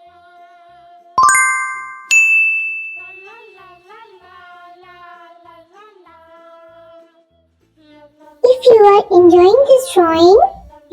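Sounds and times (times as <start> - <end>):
bell-like chime dings: 1.2 - 3.8.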